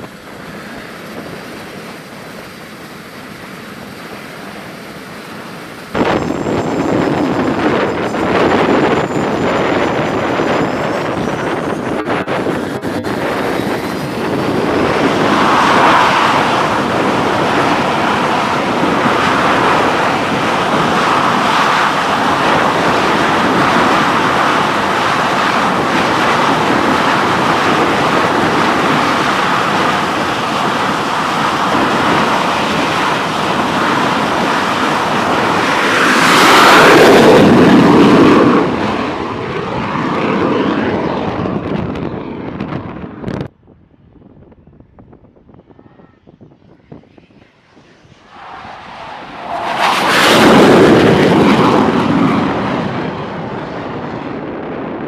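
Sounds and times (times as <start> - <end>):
jet engine running: 0.0 - 55.0.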